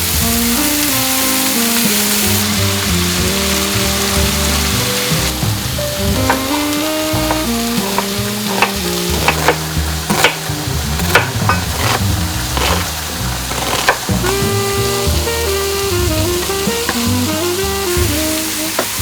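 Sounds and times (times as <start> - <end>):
background music: 0.0 - 19.0
food sizzling in a pan: 0.0 - 19.0
utensil tapping against pan: 5.1 - 14.6.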